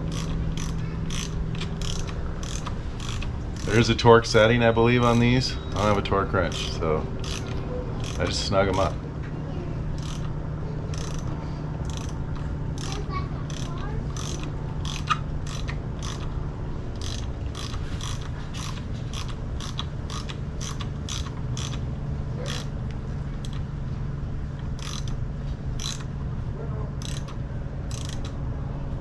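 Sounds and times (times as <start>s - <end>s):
socket ratchet clicking: 0.0s - 3.9s, 5.0s - 8.9s, 9.9s - 16.3s, 17.0s - 22.7s, 23.4s - 23.7s, 24.6s - 25.2s, 25.8s - 26.1s, 27.0s - 28.4s
steady low hum: 0.0s - 29.0s.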